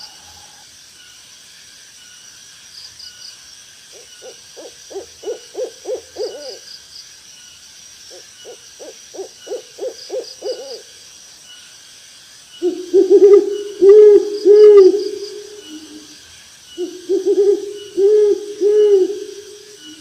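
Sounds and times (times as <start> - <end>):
high insect drone: 0.0 - 20.0
owl hooting: 3.9 - 6.6, 8.1 - 10.9, 12.6 - 16.2, 16.8 - 20.0.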